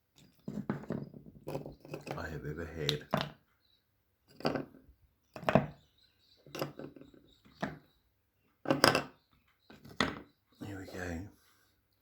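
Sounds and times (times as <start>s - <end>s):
knocks of hard objects: 0.2s - 2.2s, 2.8s - 3.4s, 4.3s - 5.8s, 6.4s - 7.9s, 8.6s - 10.3s.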